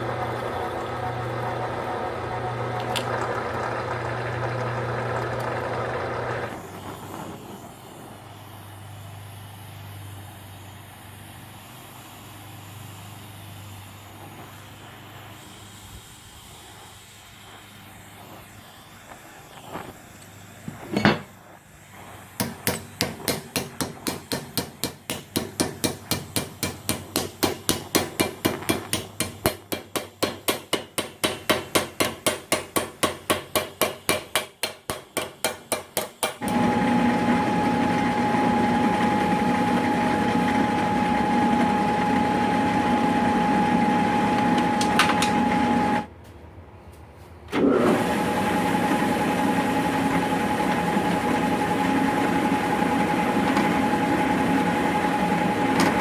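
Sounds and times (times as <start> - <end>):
small engine running: 0.0 - 20.7
steady hammering: 22.3 - 36.6.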